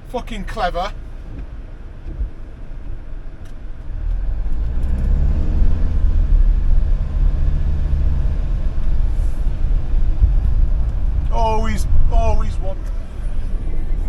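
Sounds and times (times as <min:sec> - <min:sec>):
low road rumble: 0:00.0 - 0:14.0
motorhome engine revving: 0:03.7 - 0:14.0.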